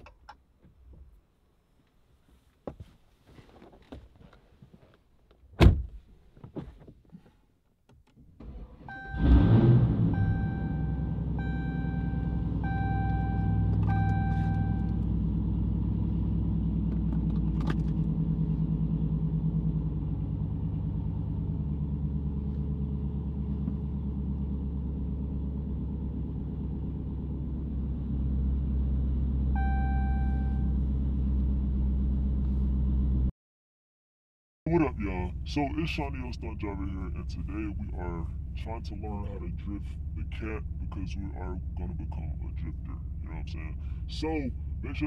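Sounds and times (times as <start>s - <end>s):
car engine rumbling at low speed: 0.0s - 33.3s, 34.7s - 45.0s
warning chime short repeated tones: 10.2s - 15.0s, 29.6s - 30.7s.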